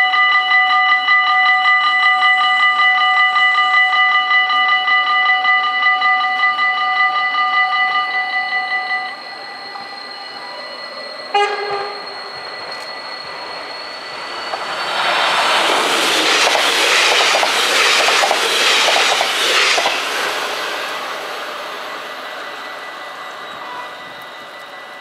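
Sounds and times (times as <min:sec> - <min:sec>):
train rushing past: 0:08.2 - 0:25.0
wheel clacks over rail joints: 0:15.8 - 0:20.0.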